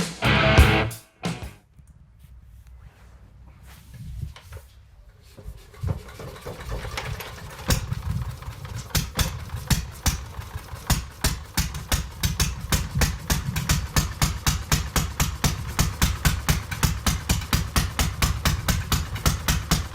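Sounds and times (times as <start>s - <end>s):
engine starting and chugging: 5.6s - 19.9s.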